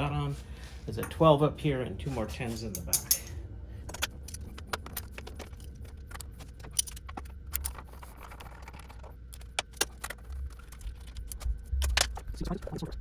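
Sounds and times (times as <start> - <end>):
metallic clicks of hand tools: 2.7 - 3.4.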